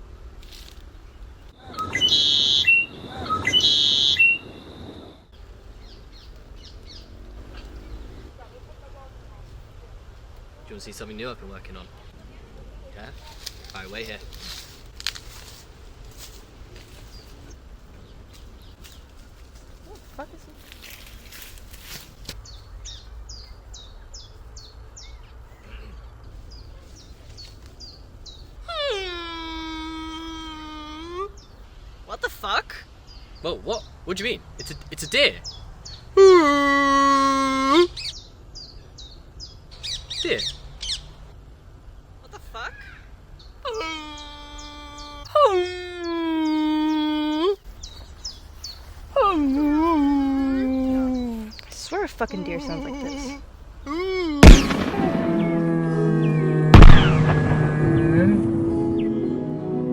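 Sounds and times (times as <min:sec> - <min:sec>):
songbird chirping: 0:00.6 - 0:59.9
shrill whistling bird calls: 0:01.6 - 0:05.2
steady low rumble: 0:54.4 - 0:59.9.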